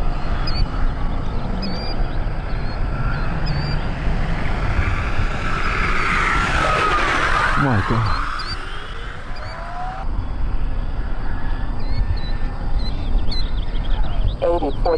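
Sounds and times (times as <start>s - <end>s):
model jet engines whining: 0.0s - 12.6s
wind noise on microphone: 9.3s - 14.6s.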